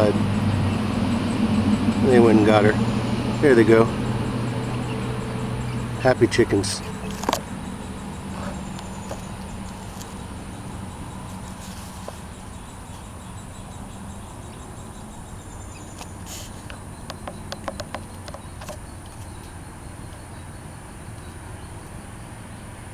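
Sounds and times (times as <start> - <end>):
low hum: 0.0 - 17.0
sharp clicks: 3.3 - 13.0, 15.8 - 19.6.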